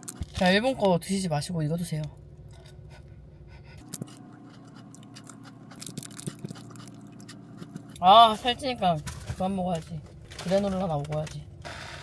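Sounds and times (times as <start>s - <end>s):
person chewing crisp biscuits: 3.7s - 8.4s.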